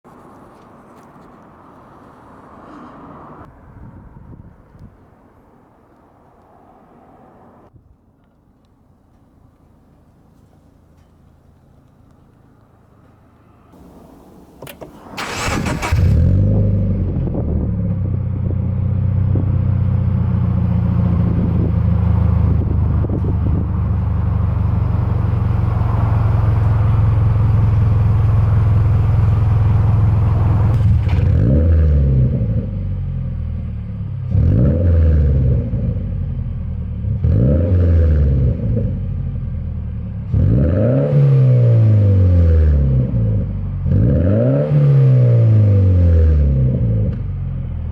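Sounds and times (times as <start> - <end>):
car engine idling: 8.8 - 17.4, 18.2 - 31.5
car engine starting: 10.6 - 47.9
engine revving: 13.8 - 33.4, 34.2 - 36.2, 37.0 - 39.3, 40.2 - 47.2.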